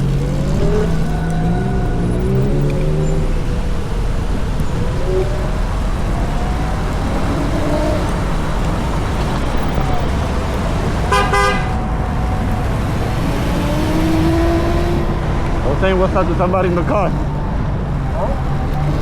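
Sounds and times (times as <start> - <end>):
traffic road rumble: 0.0 - 19.0
car horn toot: 11.0 - 11.8.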